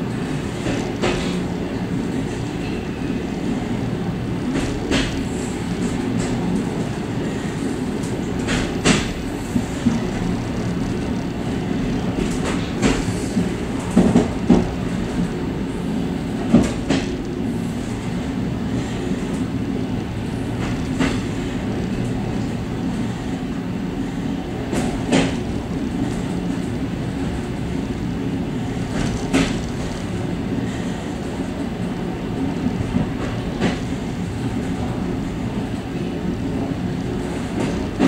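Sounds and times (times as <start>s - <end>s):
train wheels rumbling on rail: 0.0s - 38.0s
wheels clacking over rail joints: 8.3s - 15.3s, 28.8s - 30.2s.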